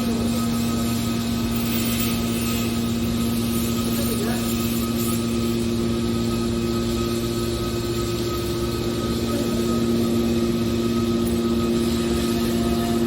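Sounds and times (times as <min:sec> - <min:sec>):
baler machine humming: 0:05.2 - 0:13.0.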